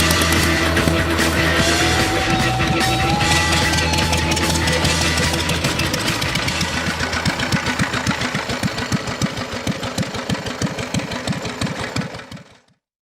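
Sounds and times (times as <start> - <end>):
single-cylinder engine running: 0.0 - 12.8.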